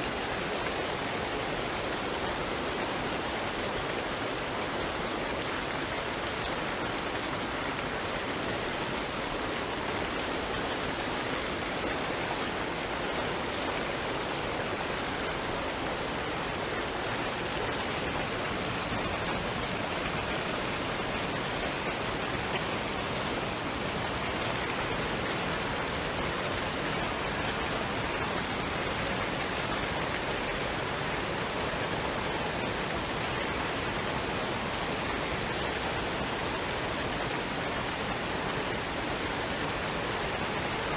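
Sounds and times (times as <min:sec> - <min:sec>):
waterfall and stream rushing: 0:00.0 - 0:40.9.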